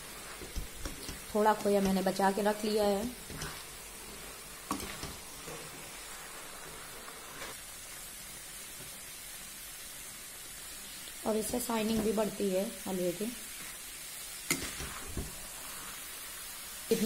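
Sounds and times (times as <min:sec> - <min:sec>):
spatula stirring: 0:00.0 - 0:07.6, 0:14.5 - 0:16.0
food sizzling in ghee: 0:00.0 - 0:17.0.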